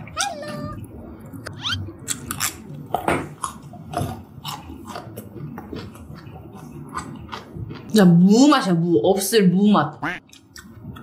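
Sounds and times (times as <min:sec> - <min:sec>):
person chewing food: 0:02.0 - 0:07.9, 0:10.3 - 0:11.0.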